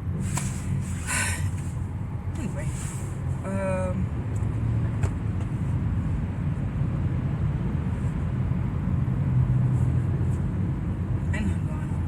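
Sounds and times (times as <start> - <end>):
car engine hum: 0.0 - 12.0
road noise: 0.0 - 12.0.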